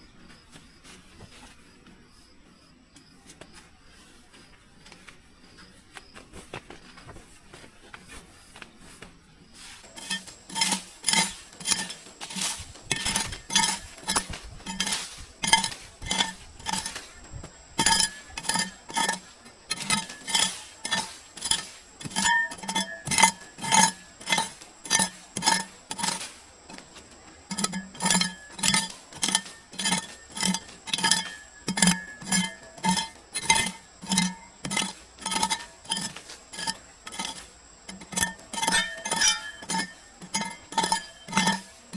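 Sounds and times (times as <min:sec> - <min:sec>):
metal utensil clinking on pot: 0:09.9 - 0:17.0, 0:17.8 - 0:26.2, 0:27.5 - 0:41.7.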